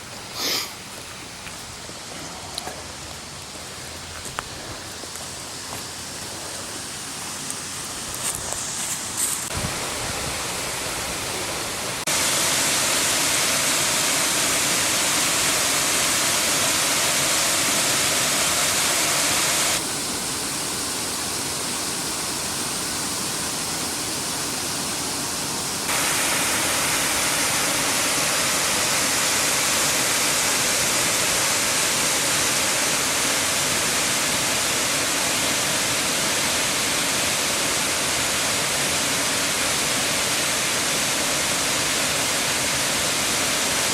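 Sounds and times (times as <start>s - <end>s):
waterfall pouring: 6.0s - 20.8s, 25.9s - 43.9s.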